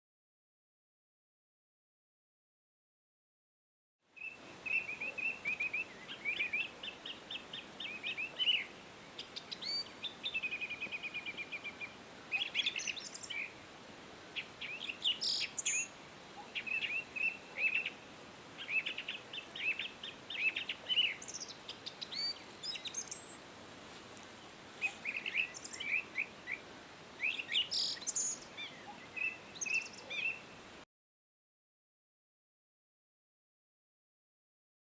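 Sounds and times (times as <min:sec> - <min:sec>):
faint steady hiss: 0:04.0 - 0:30.9
songbirds chirping: 0:04.1 - 0:30.8.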